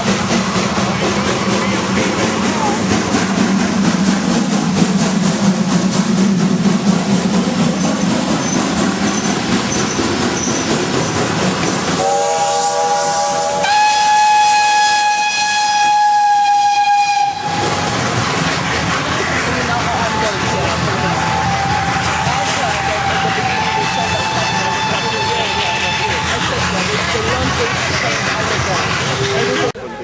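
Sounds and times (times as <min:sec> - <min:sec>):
steam locomotive rushing steam: 0:00.0 - 0:30.0
steam whistle blast: 0:12.0 - 0:17.6.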